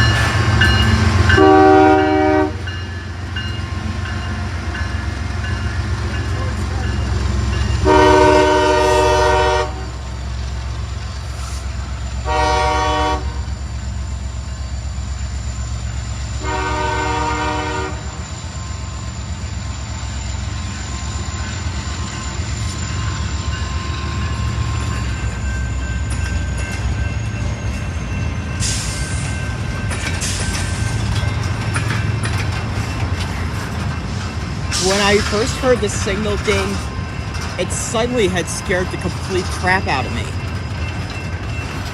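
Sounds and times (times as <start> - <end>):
passing train rumbling: 0.0 - 41.9
train horn blasts: 1.3 - 2.7, 7.8 - 10.0, 12.2 - 13.5, 16.4 - 18.1.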